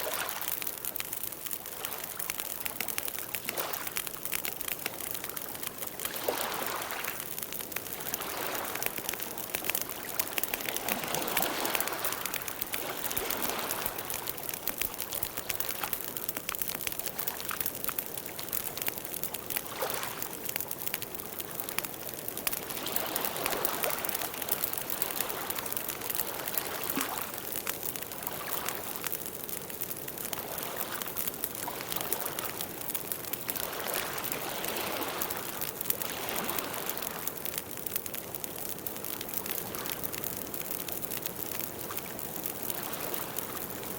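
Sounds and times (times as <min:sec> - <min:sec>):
campfire crackling: 0:00.0 - 0:43.9.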